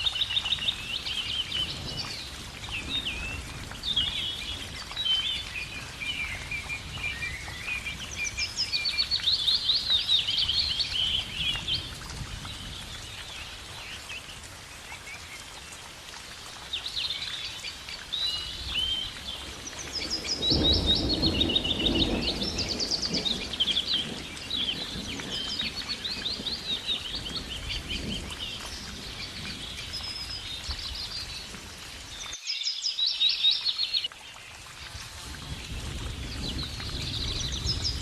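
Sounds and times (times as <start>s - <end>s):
songbirds chirping and singing: 16.8s - 34.2s.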